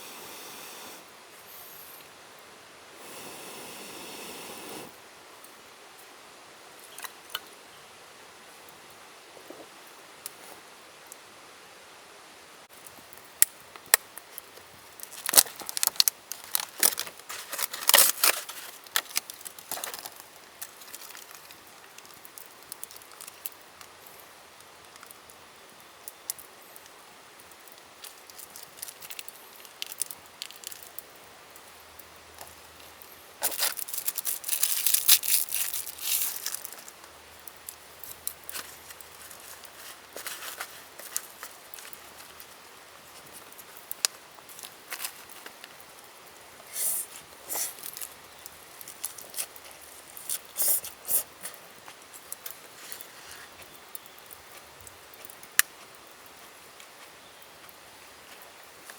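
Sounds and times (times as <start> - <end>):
rustling crinkles: 12.8 - 24.2, 27.5 - 31.1, 32.4 - 58.9.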